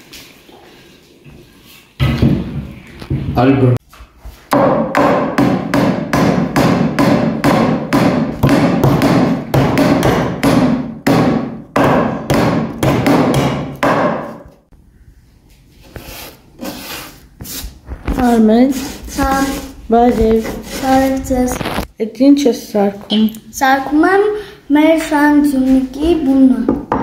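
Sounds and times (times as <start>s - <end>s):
hammer driving nails into wood: 4.5s - 14.4s.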